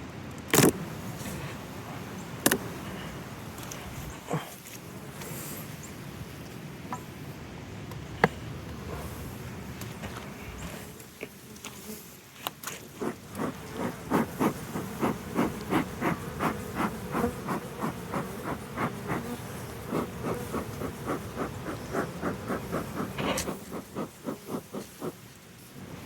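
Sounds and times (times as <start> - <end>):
bees buzzing: 0.7 - 6.4, 12.9 - 26.0
bellows puffing: 13.0 - 25.2.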